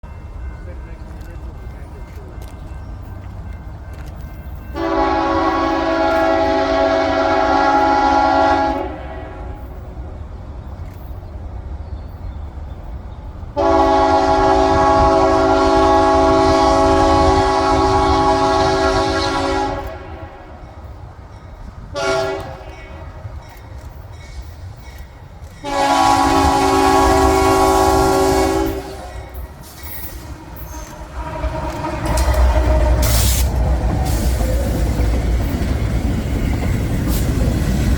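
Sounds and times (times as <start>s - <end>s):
locomotive air horn: 4.8s - 9.8s, 13.6s - 20.6s, 21.9s - 23.1s, 25.6s - 34.4s.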